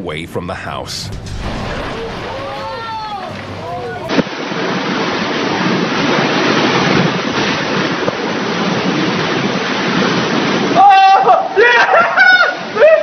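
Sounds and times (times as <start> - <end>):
storm wind on microphone: 1.0 - 11.2.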